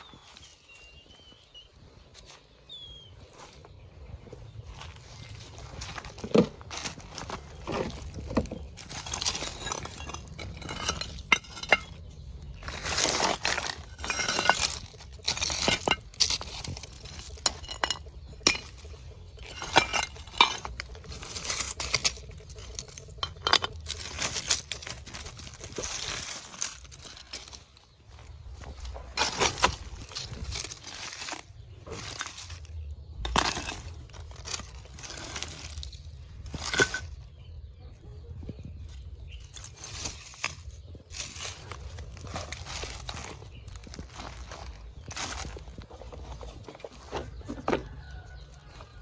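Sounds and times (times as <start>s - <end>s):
rustling: 4.8s - 37.2s.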